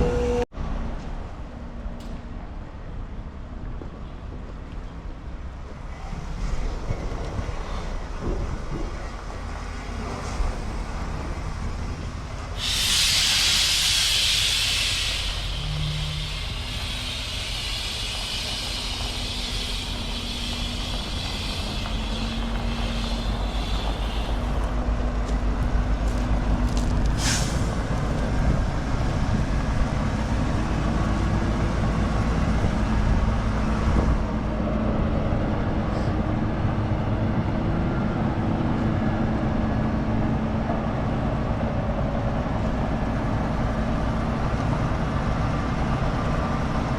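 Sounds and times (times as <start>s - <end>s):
truck diesel engine running: 9.2s - 33.5s
air brake hiss: 12.5s - 24.6s, 27.2s - 27.8s.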